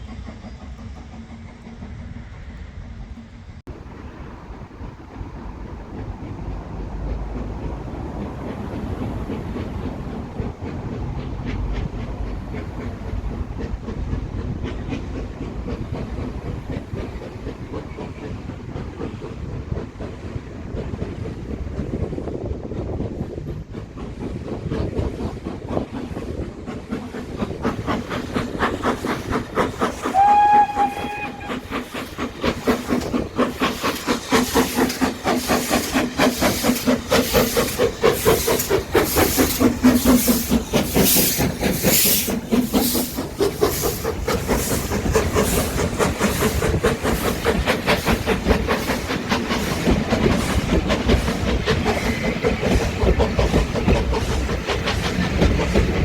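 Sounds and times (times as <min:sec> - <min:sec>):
steam locomotive exhaust beats: 0:00.0 - 0:56.0
train whistle blast: 0:30.1 - 0:31.7.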